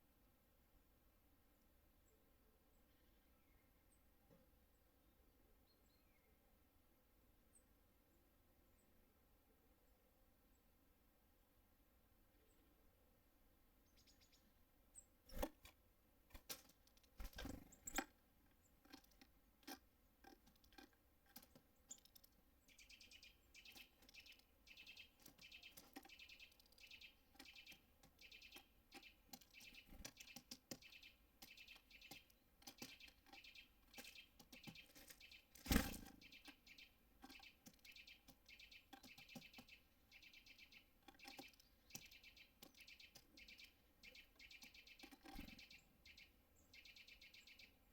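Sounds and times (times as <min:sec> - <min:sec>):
birds chirping: 0:12.3 - 0:47.9
sharp knocks and taps: 0:18.8 - 0:22.4, 0:27.4 - 0:35.8, 0:37.2 - 0:39.8.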